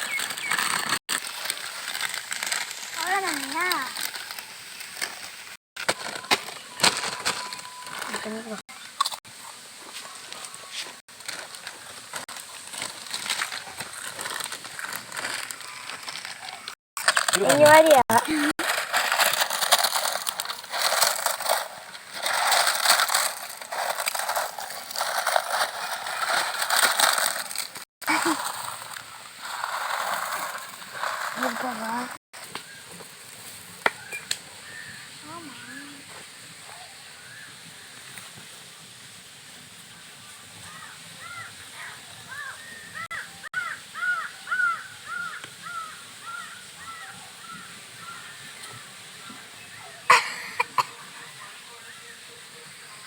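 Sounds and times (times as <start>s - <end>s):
bird calling: 0.0s - 0.8s, 40.7s - 53.0s
potato chips crunching by hand: 0.0s - 5.2s, 11.2s - 32.0s.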